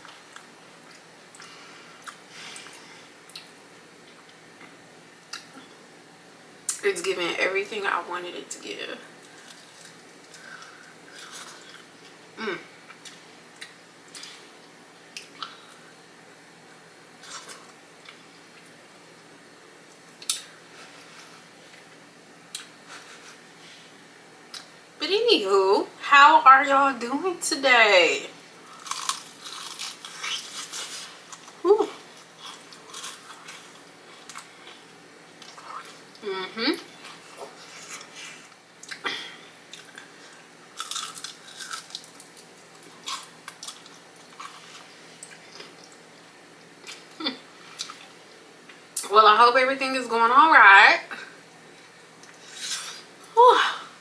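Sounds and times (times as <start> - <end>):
chewing crunches: 28.7 - 36.2, 40.8 - 46.0.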